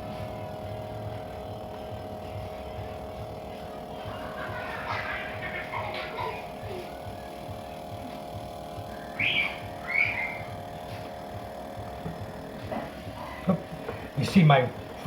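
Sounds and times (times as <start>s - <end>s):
freezer compressor humming: 0.0s - 15.0s.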